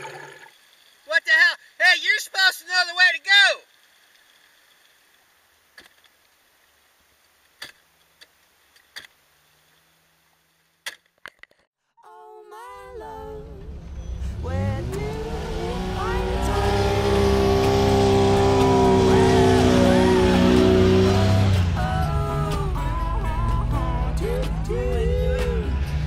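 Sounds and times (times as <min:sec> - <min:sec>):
car engine revving: 0:13.2 - 0:26.0.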